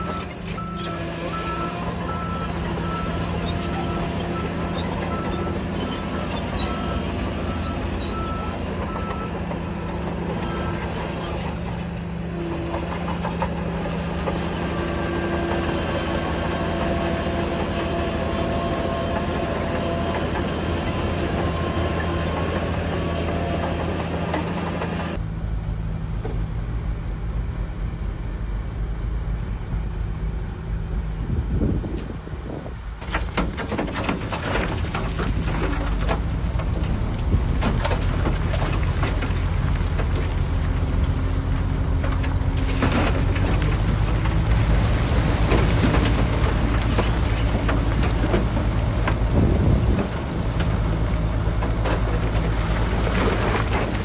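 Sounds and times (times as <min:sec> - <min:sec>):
reversing alarm beeping: 0:00.0 - 0:09.4
heavy machinery diesel engines: 0:00.0 - 0:54.0.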